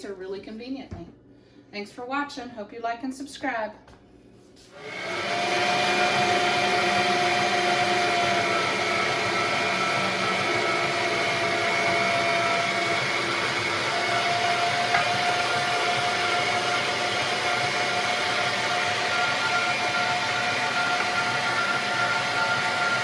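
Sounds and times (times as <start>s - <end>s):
meat grinder motor whine: 4.8s - 23.0s.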